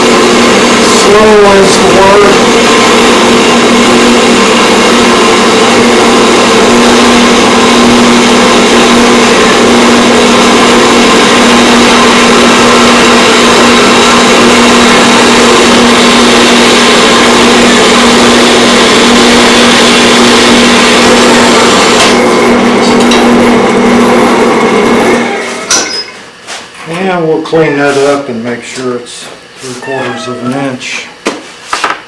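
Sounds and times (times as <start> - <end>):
band saw cutting steel: 0.0 - 23.4
band saw motor hum: 0.0 - 31.7.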